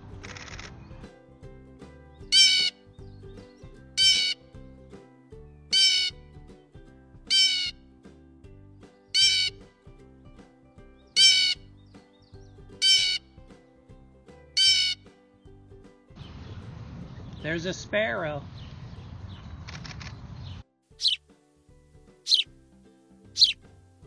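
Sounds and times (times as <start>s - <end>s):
quiet background music: 0.0s - 19.4s, 20.6s - 24.0s
blue jay calling: 2.2s - 2.8s, 4.0s - 4.4s, 5.7s - 6.2s, 7.3s - 7.8s, 9.1s - 9.6s, 11.1s - 11.8s, 12.8s - 13.3s, 14.6s - 15.0s, 21.0s - 21.2s, 22.3s - 22.5s, 23.4s - 23.6s.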